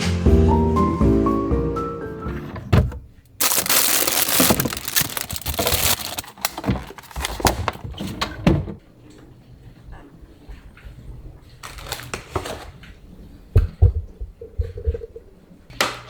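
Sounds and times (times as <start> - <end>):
crinkling rustle: 3.4 - 8.1, 11.6 - 12.6.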